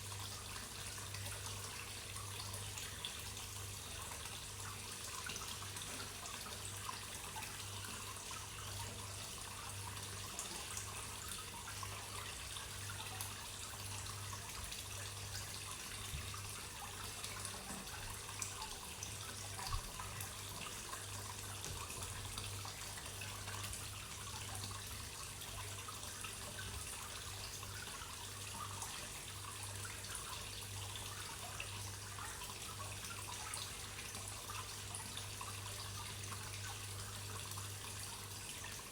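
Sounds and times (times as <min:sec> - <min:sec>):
water trickling into a pond: 0:00.0 - 0:38.9.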